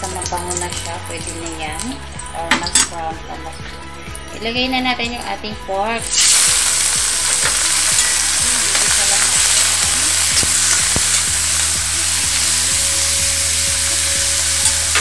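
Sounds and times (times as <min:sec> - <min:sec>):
meat sizzling in hot oil: 0:00.0 - 0:04.3, 0:06.0 - 0:15.0
small oil pops: 0:08.7 - 0:11.8.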